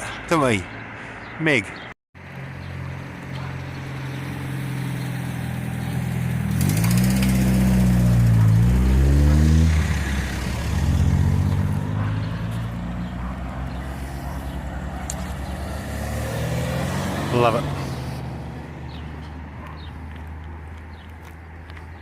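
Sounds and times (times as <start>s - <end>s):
traffic hum: 0.0s - 22.0s
vehicle engine revving: 4.0s - 19.8s.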